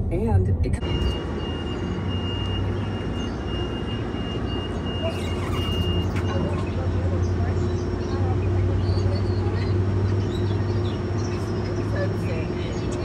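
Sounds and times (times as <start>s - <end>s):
train low hum: 6.0s - 13.0s.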